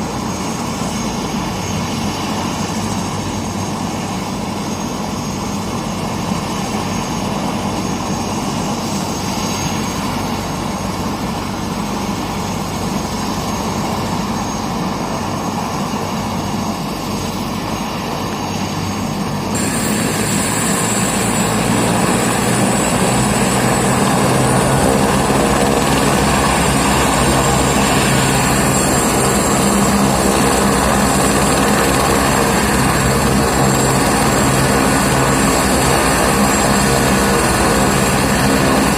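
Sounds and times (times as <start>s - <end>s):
helicopter turbine and rotor: 0.0s - 38.9s
high whine: 18.3s - 38.9s.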